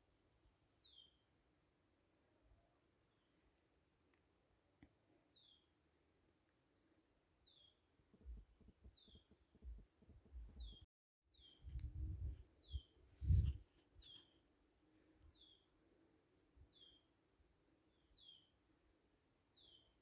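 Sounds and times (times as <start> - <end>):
low rumbling bumps: 11.7 - 12.4.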